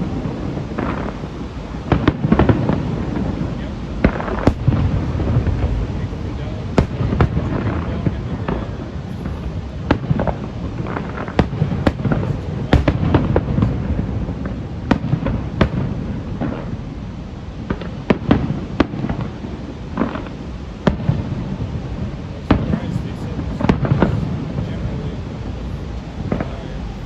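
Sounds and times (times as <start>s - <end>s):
fireworks bangs and cracks: 0.0s - 27.0s
low rumble of booms: 0.0s - 27.0s.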